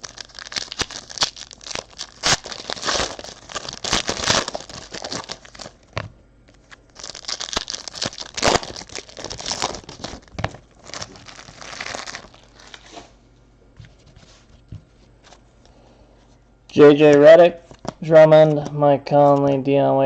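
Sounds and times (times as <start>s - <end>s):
plastic wrapping tearing and crinkling: 0.0s - 13.1s.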